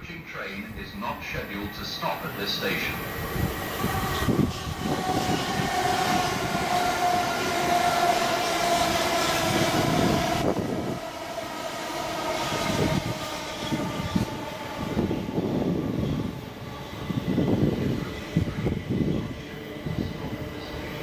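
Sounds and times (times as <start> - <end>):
train wheels rumbling on rails: 0.0 - 21.0
train whine: 0.0 - 21.0.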